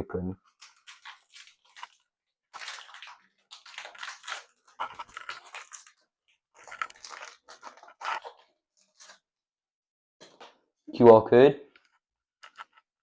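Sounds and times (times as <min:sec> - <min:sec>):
foil wrapper tearing and crinkling: 0:00.5 - 0:09.2.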